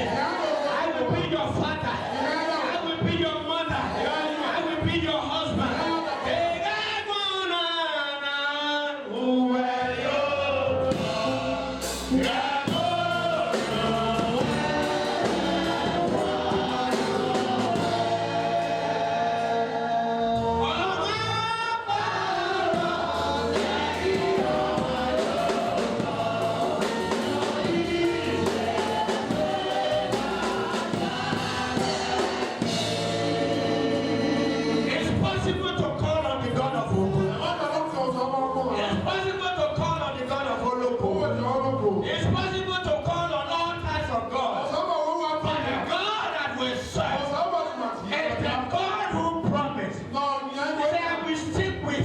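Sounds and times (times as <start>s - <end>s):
choir singing gospel music: 0.0s - 52.0s
steady bass: 10.5s - 36.0s.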